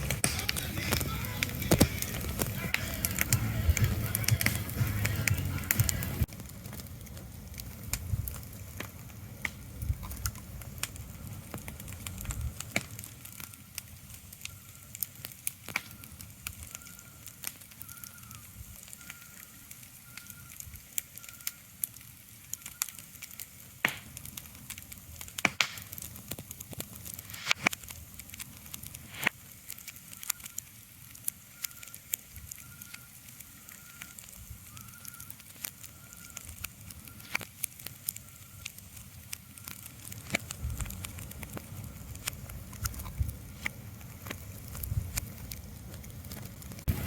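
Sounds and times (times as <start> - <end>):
fire crackling and popping: 0.0 - 47.0
low rumble: 44.8 - 47.0.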